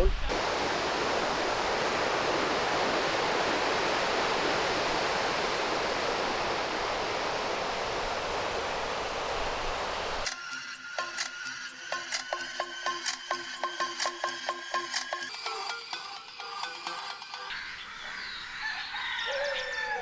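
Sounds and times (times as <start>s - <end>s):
waves breaking on beach: 0.0s - 10.3s.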